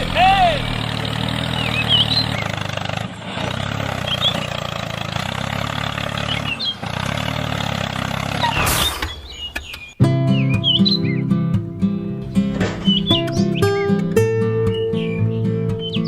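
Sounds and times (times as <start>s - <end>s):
music: 10.0s - 16.0s.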